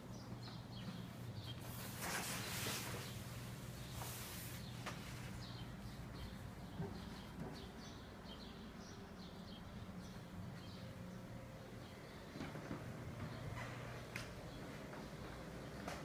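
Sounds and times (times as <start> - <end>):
low steady hum: 0.0 - 16.0
small birds chirping: 0.0 - 16.0
shower curtain rustling: 1.6 - 5.6.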